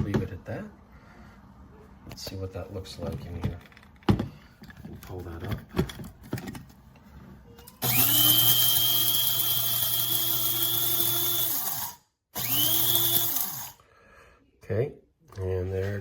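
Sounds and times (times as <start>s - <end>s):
coffee grinder motor whining: 7.8s - 13.8s.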